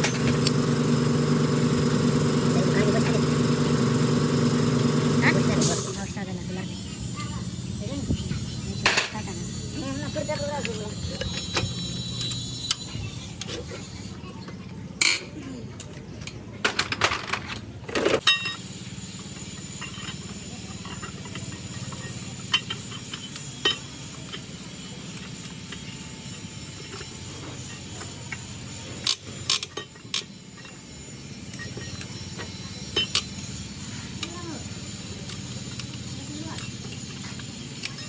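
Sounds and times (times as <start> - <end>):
metal tools clinking: 5.2 - 18.7, 19.3 - 30.9.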